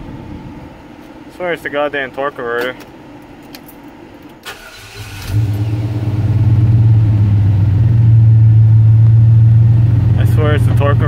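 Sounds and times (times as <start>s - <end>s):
engine starter: 4.4s - 5.8s.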